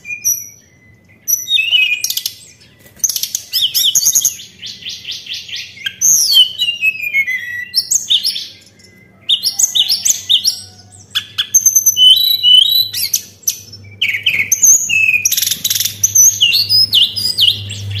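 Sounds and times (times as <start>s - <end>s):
bird whistling song: 0.0s - 18.0s.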